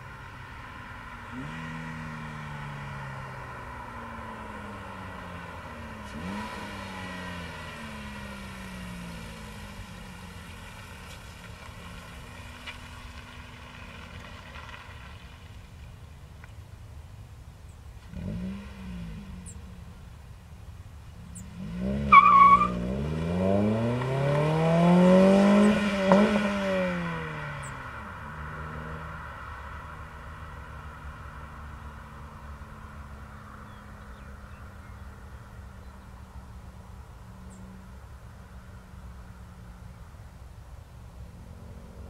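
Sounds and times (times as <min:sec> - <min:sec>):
car engine accelerating: 0:00.0 - 0:15.6, 0:18.0 - 0:20.2, 0:21.1 - 0:40.1, 0:41.1 - 0:42.0
engine rev blip: 0:21.4 - 0:27.8.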